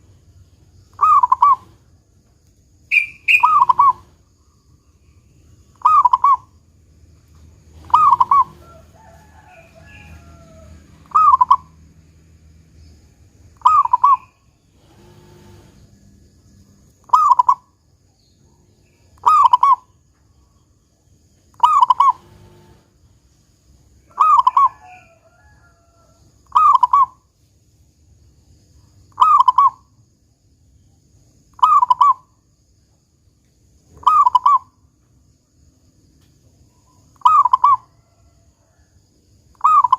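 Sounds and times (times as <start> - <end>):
dove cooing: 0.9 - 1.8, 2.9 - 4.2, 5.8 - 6.5, 7.7 - 11.8, 13.6 - 14.3, 17.1 - 17.6, 21.6 - 22.8, 24.1 - 25.2, 26.5 - 27.2, 34.0 - 34.7, 37.2 - 37.9.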